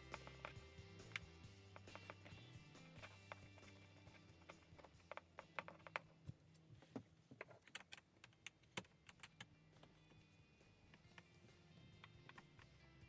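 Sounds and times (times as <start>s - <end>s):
plastic parts clicking: 7.4s - 10.2s.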